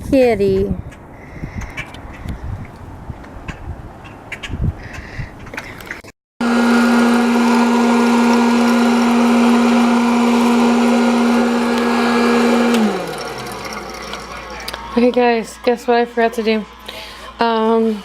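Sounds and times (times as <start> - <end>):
popcorn popper motor whirring: 6.4 - 17.3.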